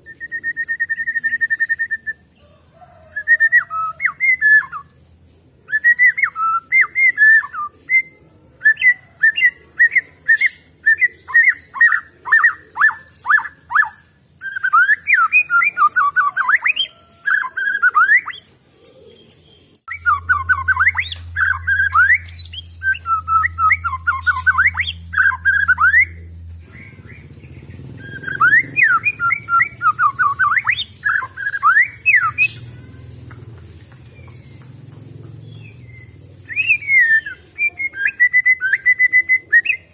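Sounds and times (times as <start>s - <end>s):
bird singing whistled notes: 0.0s - 2.2s, 5.7s - 32.7s, 35.5s - 39.9s
steady low hum: 19.8s - 31.0s.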